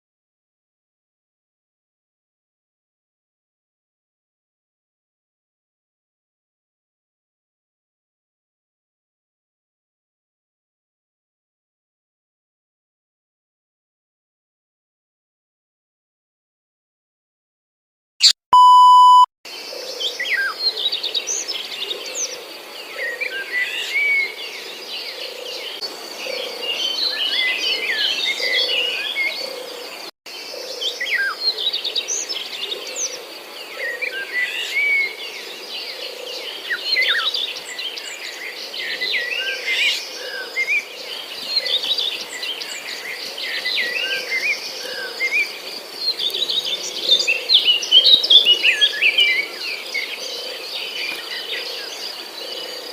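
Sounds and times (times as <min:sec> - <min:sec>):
electronic beep: 0:18.2 - 0:19.3
small birds chirping chorus: 0:19.5 - 0:52.9.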